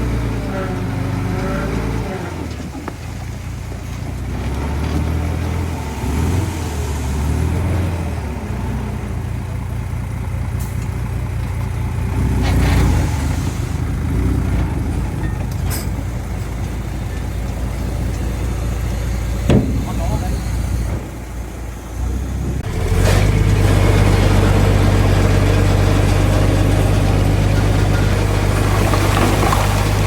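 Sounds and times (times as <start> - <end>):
heavy diesel machinery engines: 0.0 - 30.0
sharp metallic knocks: 19.5 - 20.5.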